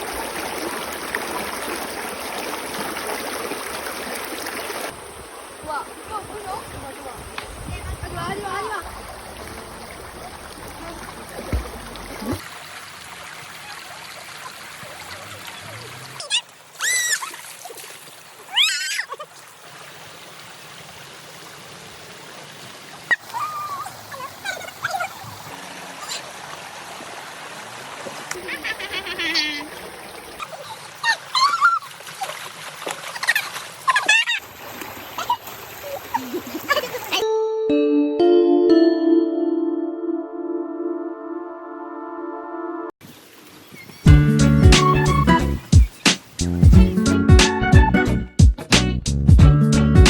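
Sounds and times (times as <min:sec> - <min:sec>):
stream flowing over rocks: 0:00.0 - 0:18.6, 0:19.2 - 0:37.2
water splashing: 0:00.0 - 0:21.7, 0:22.6 - 0:37.2
low knocks: 0:08.9 - 0:12.4
people squealing: 0:18.5 - 0:19.2, 0:28.4 - 0:29.7.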